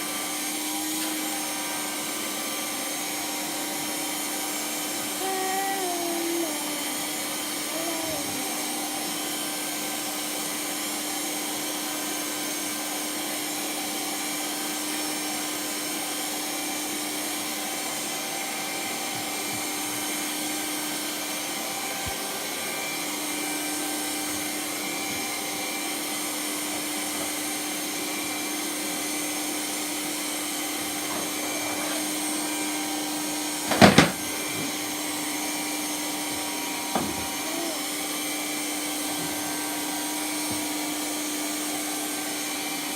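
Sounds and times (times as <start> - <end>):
vacuum cleaner running: 0.0 - 42.9
vacuum cleaner bumping: 33.5 - 35.0, 36.9 - 37.4.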